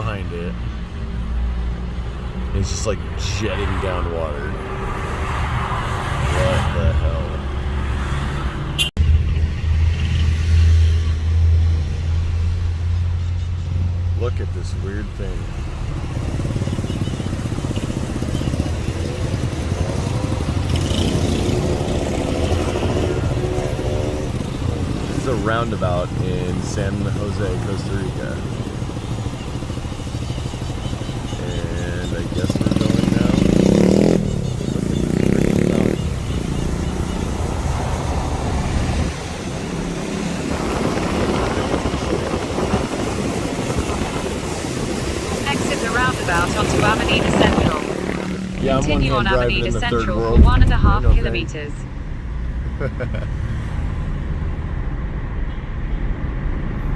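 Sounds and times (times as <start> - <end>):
car engine and road rumble: 0.0 - 56.9
engine note rising: 13.8 - 29.5, 30.4 - 51.9.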